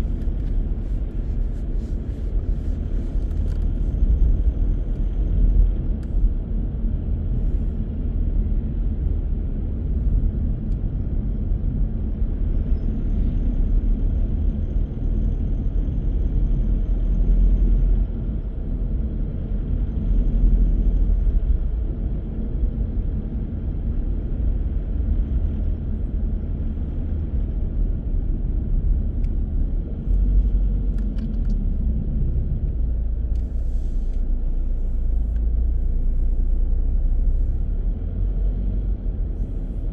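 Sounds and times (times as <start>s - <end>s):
car driving: 0.0s - 7.8s, 28.5s - 39.9s.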